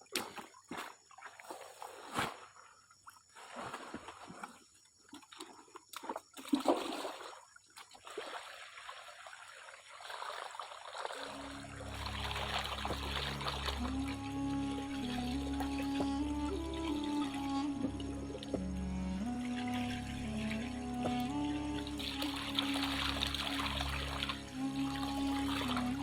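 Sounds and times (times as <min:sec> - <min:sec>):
water splashing and trickling: 0:00.0 - 0:26.0
background music: 0:11.3 - 0:26.0.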